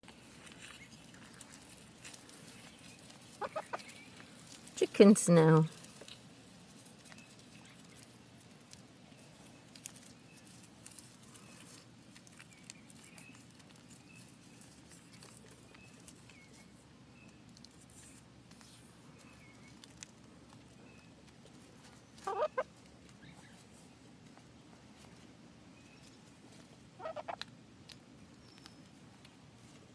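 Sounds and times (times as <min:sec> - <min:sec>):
chickens making soft calls: 0:03.3 - 0:04.0, 0:22.1 - 0:23.7, 0:27.0 - 0:27.4
chicken clucking: 0:03.4 - 0:03.9, 0:22.2 - 0:22.7, 0:27.0 - 0:27.4.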